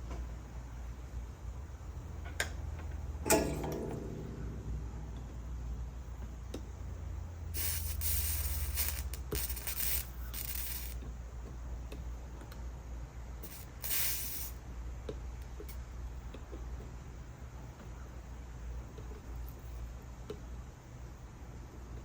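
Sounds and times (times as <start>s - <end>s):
steady low hum: 0.0s - 22.0s
soldering iron sizzling: 7.5s - 11.1s, 13.4s - 14.6s
small ticks: 7.6s - 11.1s.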